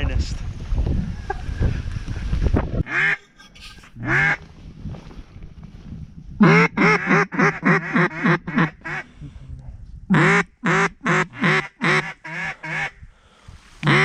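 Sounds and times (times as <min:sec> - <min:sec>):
duck quacking: 0:02.8 - 0:04.4, 0:06.4 - 0:09.1, 0:10.2 - 0:13.0.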